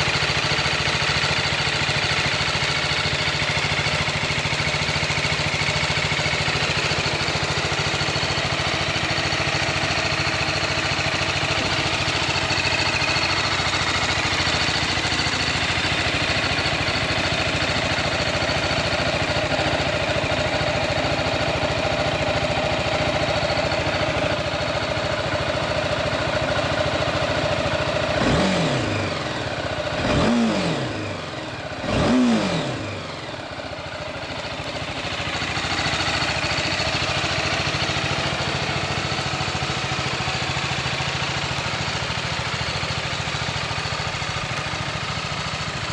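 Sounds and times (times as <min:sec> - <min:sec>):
motorcycle engine idling and revving: 0:00.0 - 0:45.9.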